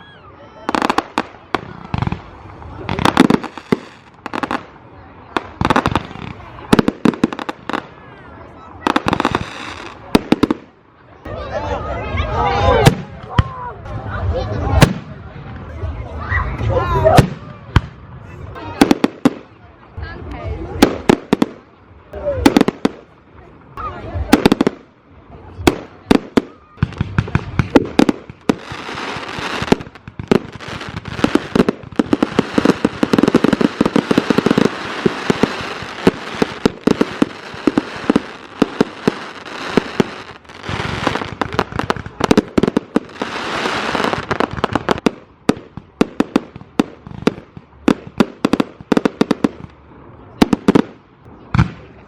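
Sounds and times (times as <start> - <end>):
fireworks bangs and crackles: 0.0 - 11.2, 12.3 - 52.0.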